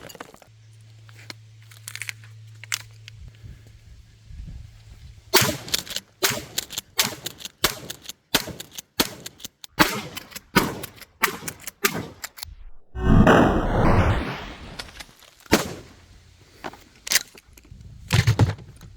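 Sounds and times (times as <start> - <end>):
shotgun action clicking: 5.6 - 12.5
loud rushing noise: 12.6 - 15.0.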